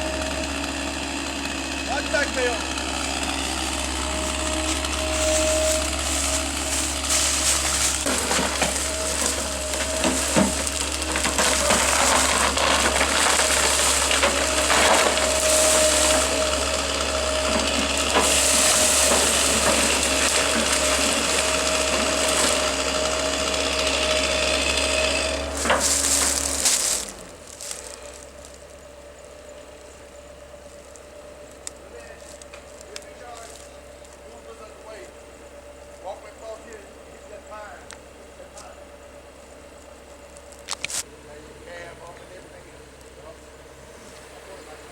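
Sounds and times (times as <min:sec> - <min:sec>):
wood-cutting machine running: 0:00.0 - 0:44.9
crackling clicking through wood: 0:30.7 - 0:34.3.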